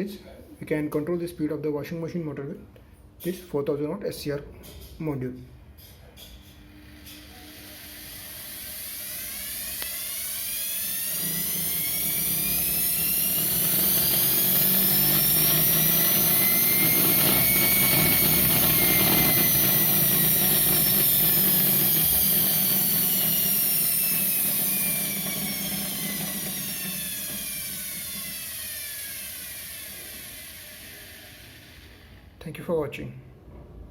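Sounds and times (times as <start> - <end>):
motor whine changing pitch: 6.9 - 32.4.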